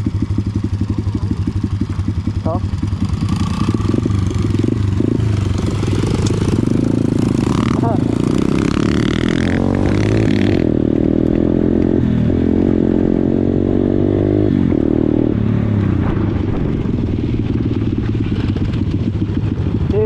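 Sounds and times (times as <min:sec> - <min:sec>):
small motorbike engine revving: 0:02.4 - 0:15.4.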